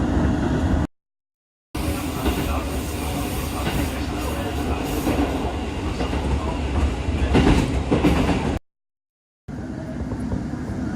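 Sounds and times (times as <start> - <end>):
train rumbling on rails: 0.0 - 0.9, 1.8 - 8.6, 9.5 - 10.9
train wheel clatter: 1.9 - 8.6.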